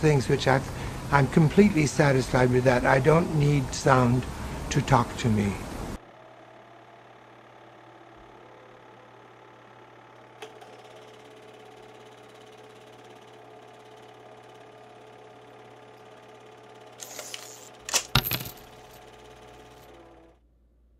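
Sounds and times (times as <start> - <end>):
faint hum: 0.0 - 10.3.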